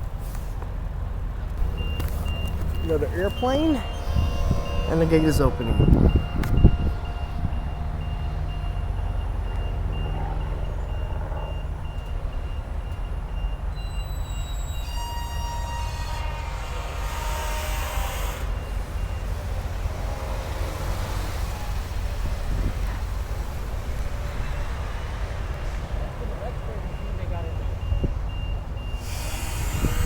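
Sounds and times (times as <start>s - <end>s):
low engine hum: 0.0s - 13.8s
gate warning beeper: 1.6s - 16.4s.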